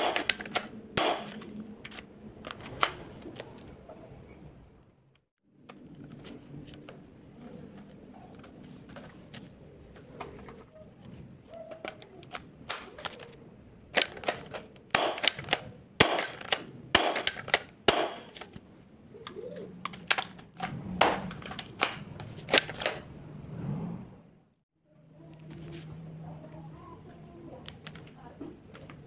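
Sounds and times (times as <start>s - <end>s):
airsoft gun plastic clacks: 11.7s - 18.6s.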